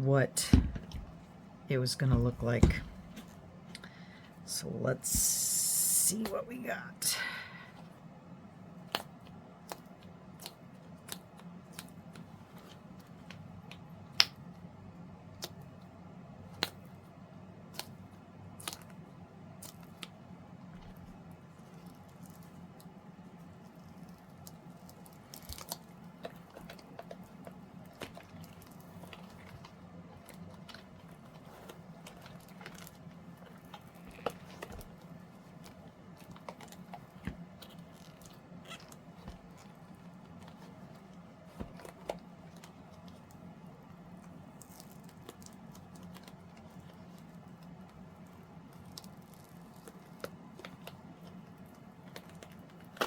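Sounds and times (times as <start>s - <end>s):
steady low hum: 0.0s - 53.0s
small clicks taps and crackles: 8.8s - 15.9s, 16.5s - 53.0s
silicone mold peeling: 16.5s - 53.0s.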